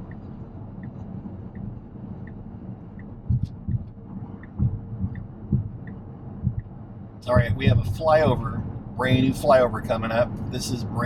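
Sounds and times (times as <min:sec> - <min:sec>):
road and tyre rumble in car: 0:00.0 - 0:11.0
brief low thumps: 0:03.0 - 0:09.4.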